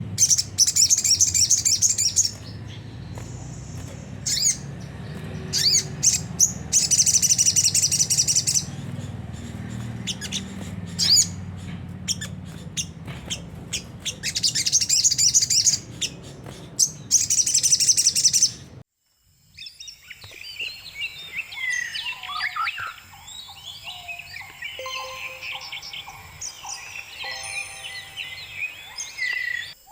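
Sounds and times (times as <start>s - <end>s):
steady low hum: 0.0s - 17.6s
harsh rapid bird twittering: 0.0s - 18.8s, 19.6s - 29.9s
lower varied birdsong: 0.0s - 29.9s
sharp bird chirps: 0.2s - 18.7s, 19.6s - 29.9s.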